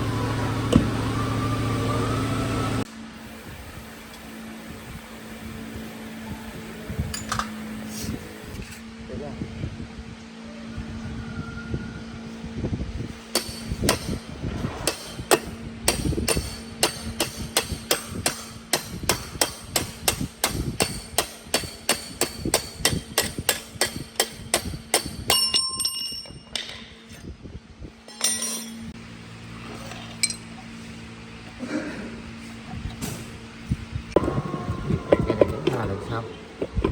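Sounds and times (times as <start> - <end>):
hammering on metal: 13.3 - 14.2, 14.8 - 26.3
ringing metallic clinks: 23.6 - 26.8, 28.1 - 28.9.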